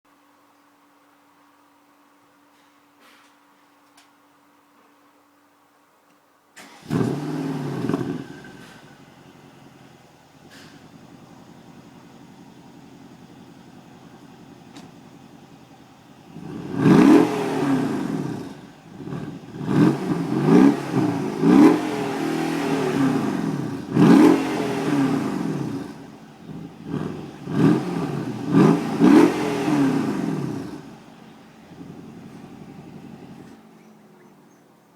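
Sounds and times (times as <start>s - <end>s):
engine revving: 6.6s - 13.2s, 16.3s - 33.6s
car engine idling: 6.6s - 34.9s.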